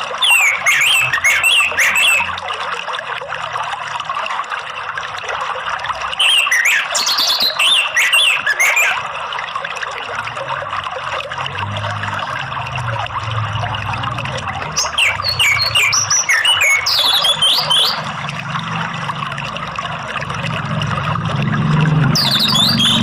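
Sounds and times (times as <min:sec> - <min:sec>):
flowing water rushing: 0:00.0 - 0:23.0
thrush singing whistled phrases: 0:00.1 - 0:02.4, 0:06.2 - 0:09.0, 0:14.7 - 0:18.1, 0:22.1 - 0:23.0.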